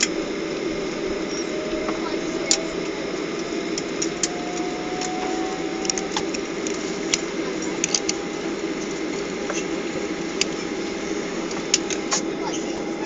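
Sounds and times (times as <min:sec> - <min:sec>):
airplane cabin noise: 0:00.0 - 0:13.0.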